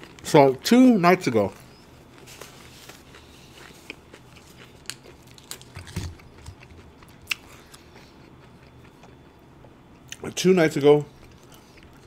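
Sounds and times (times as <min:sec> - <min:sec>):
person chewing food: 0:01.7 - 0:10.2, 0:11.1 - 0:12.0.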